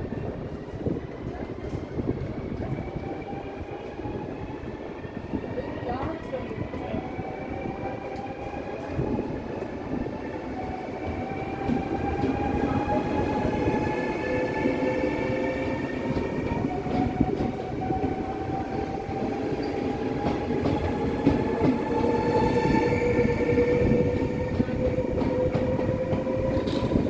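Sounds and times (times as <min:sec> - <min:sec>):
wheels rumbling on rails: 0:10.6 - 0:27.0.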